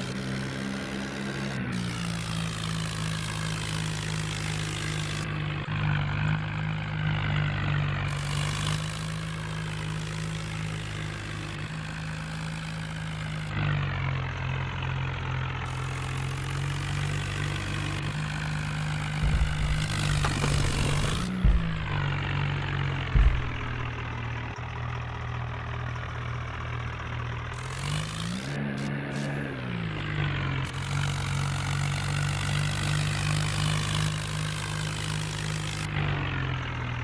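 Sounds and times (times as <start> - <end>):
tractor engine running: 0.0 - 13.5, 14.1 - 37.0.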